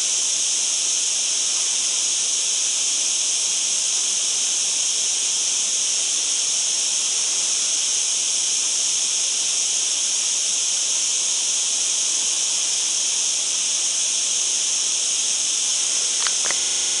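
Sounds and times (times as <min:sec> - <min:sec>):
insect chorus drone: 0:00.0 - 0:17.0
short insect call: 0:06.6 - 0:17.0.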